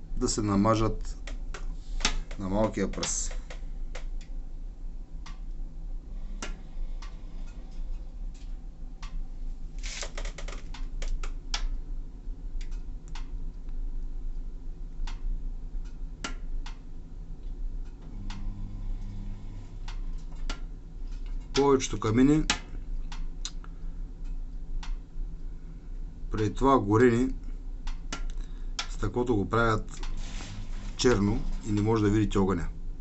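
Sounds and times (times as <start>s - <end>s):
light clicks and ticks: 1.0s - 4.4s, 5.2s - 5.6s, 6.4s - 9.2s, 12.6s - 13.8s, 15.0s - 18.5s, 19.8s - 25.0s, 27.8s - 29.2s.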